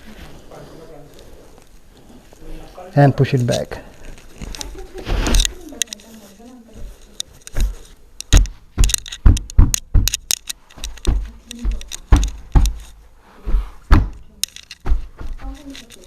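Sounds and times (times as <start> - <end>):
fittings rattling: 5.3 - 13.0, 14.1 - 16.0
sofa bed thumping into brackets: 8.3 - 10.3, 10.9 - 14.2.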